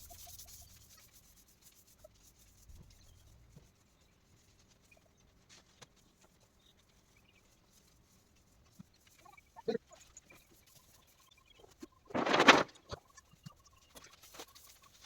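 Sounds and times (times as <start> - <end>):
faint chick peep: 9.0 - 12.1.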